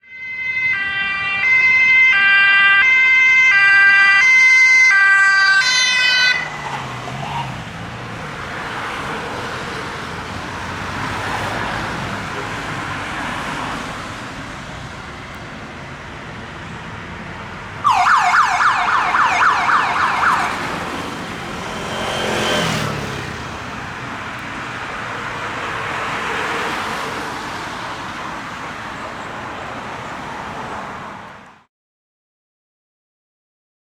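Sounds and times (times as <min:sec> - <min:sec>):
fast yelp siren: 0:00.0 - 0:07.6, 0:17.8 - 0:22.9
two-tone police siren: 0:00.0 - 0:07.7, 0:17.8 - 0:23.3
car engine passing by: 0:06.0 - 0:15.4, 0:17.8 - 0:31.5.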